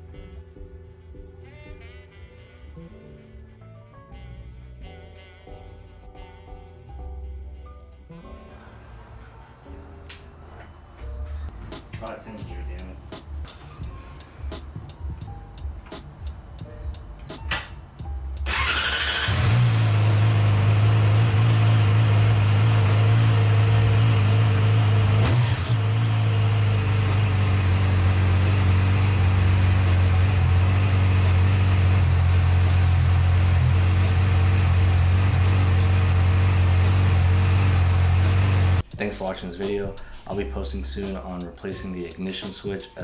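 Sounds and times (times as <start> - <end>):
motorcycle engine idling: 18.4 - 38.8.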